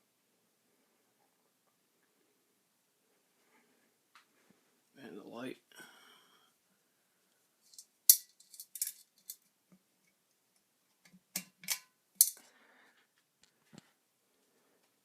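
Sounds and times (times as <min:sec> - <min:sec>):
light metallic clinks: 0:11.4 - 0:12.4.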